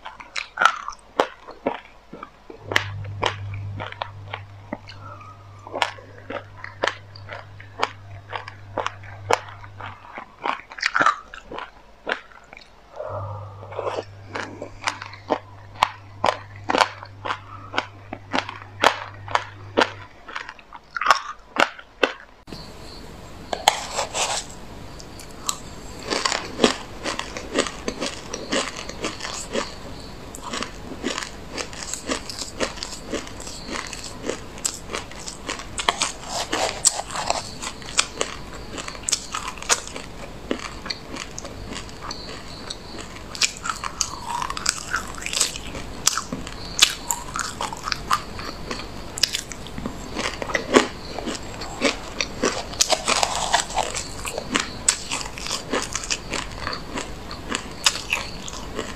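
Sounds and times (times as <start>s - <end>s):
chewing crunchy seeds: 0.0s - 58.9s.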